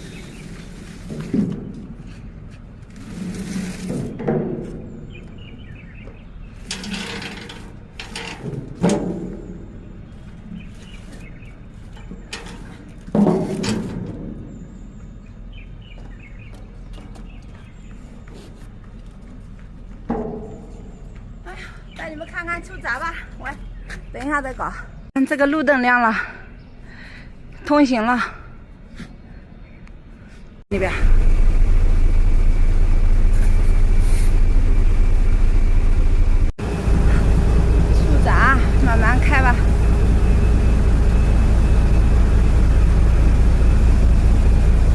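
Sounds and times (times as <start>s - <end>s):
boat diesel engine rumbling: 30.7s - 44.9s
low steady hum: 30.7s - 44.9s.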